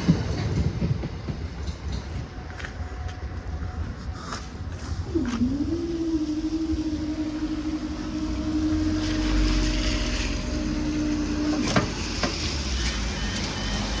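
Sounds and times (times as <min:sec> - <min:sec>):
low traffic rumble: 0:00.0 - 0:14.0
crossing alarm steady tone: 0:05.5 - 0:14.0.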